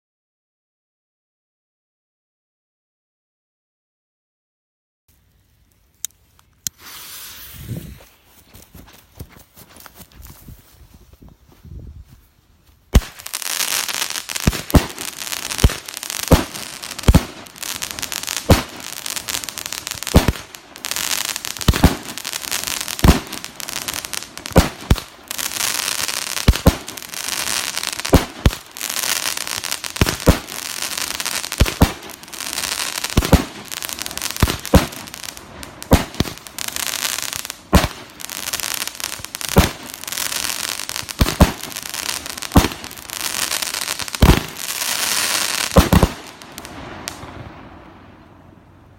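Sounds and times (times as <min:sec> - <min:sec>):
firework hissing: 0:06.6 - 0:08.2, 0:13.0 - 0:47.2
firework bangs: 0:12.9 - 0:48.1.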